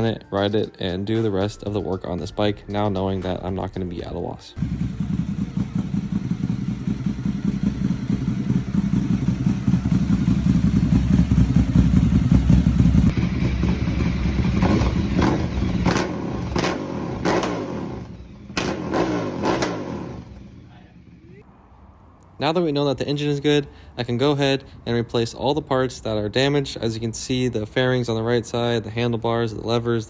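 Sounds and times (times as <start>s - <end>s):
motorcycle engine running: 4.6s - 21.4s.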